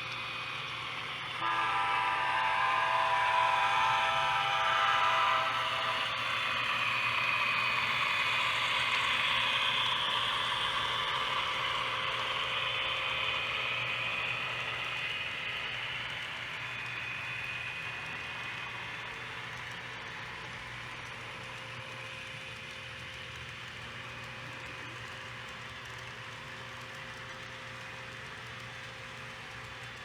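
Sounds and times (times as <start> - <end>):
train horn blast: 1.4 - 6.3
model train wheels clattering: 14.6 - 30.0.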